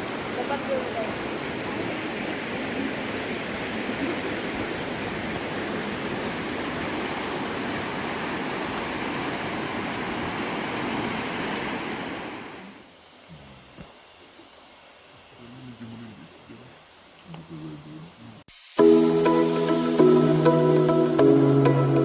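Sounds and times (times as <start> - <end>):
flowing water rushing: 0.0 - 13.0.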